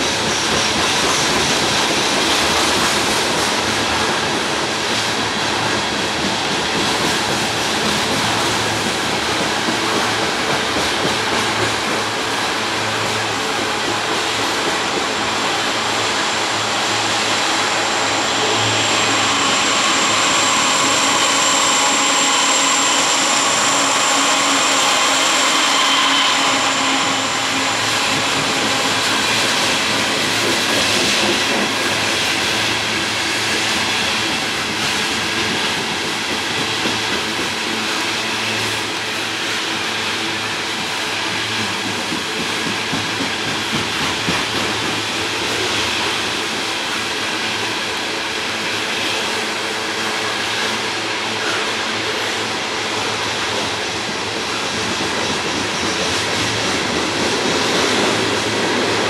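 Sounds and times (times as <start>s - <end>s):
train wheels rumbling on rails: 0.0s - 59.0s
thin high whine: 15.1s - 30.7s.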